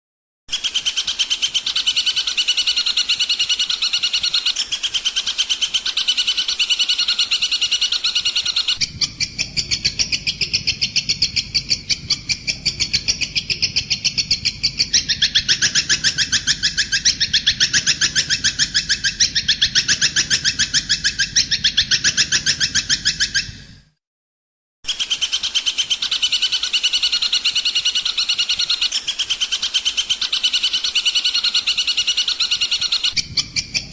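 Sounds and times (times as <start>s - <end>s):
high songbird chirps: 0.5s - 23.7s, 24.9s - 33.9s
rapid bird song: 0.5s - 23.8s, 24.8s - 33.9s
low hum: 8.8s - 21.4s.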